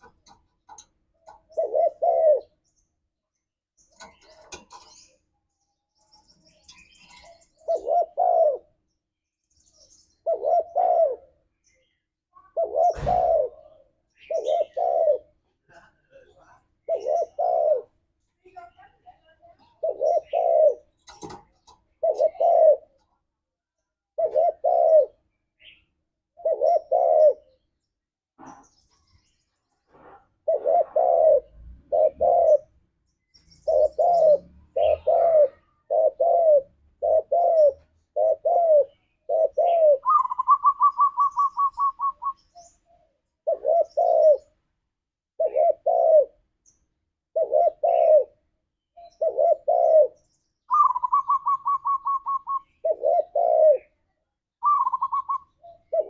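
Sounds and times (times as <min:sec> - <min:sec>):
doves cooing: 0:00.0 - 0:02.7, 0:04.0 - 0:05.1, 0:06.5 - 0:08.8, 0:10.2 - 0:11.5, 0:12.4 - 0:15.4, 0:16.2 - 0:18.0, 0:19.5 - 0:23.0, 0:24.1 - 0:25.3, 0:26.3 - 0:27.6, 0:29.9 - 0:32.9, 0:33.6 - 0:44.6, 0:45.3 - 0:46.6, 0:47.2 - 0:54.0, 0:54.6 - 0:56.0
rapid higher-pitched bird notes: 0:39.7 - 0:42.6, 0:50.7 - 0:52.7, 0:54.6 - 0:55.8.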